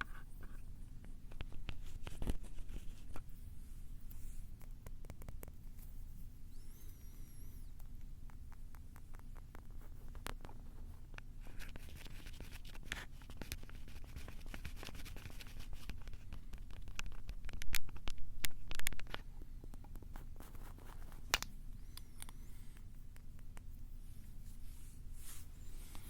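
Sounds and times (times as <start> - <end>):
fingers scratching on recorder: 5.0 - 7.8.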